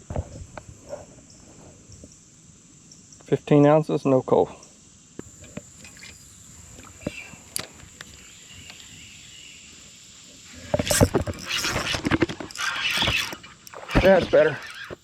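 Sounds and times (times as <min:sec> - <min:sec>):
high-pitched insect drone: 0:04.6 - 0:15.0
faint clicks: 0:05.2 - 0:09.4.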